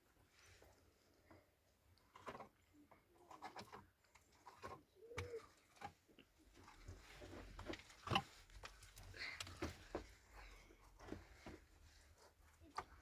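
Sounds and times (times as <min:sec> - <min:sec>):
faint bird cooing: 0:04.9 - 0:05.6.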